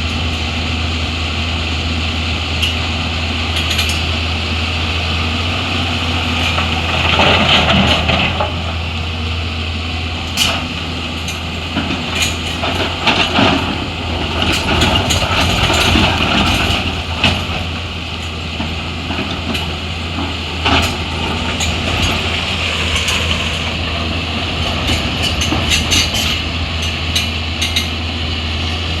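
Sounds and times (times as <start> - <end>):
diesel machinery running: 0.0 - 29.0
metal clanks and knocks: 10.3 - 28.0.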